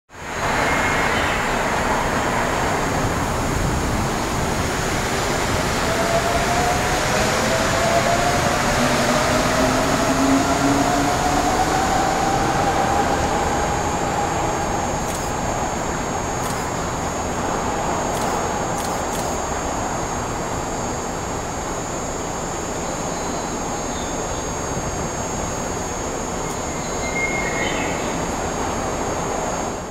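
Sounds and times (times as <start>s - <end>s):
monorail train rumble: 0.1s - 29.9s
train motor whine rising: 5.0s - 20.0s.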